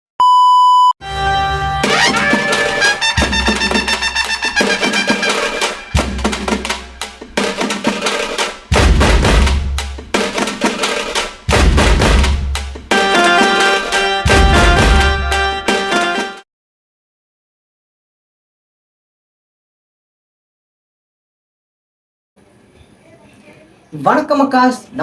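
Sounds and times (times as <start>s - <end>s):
short steady beep: 0.2s - 1.0s
intro music with drum beat: 1.7s - 16.4s
heavy bass hits: 1.8s - 7.5s, 8.7s - 10.2s, 11.5s - 13.0s, 14.3s - 15.4s.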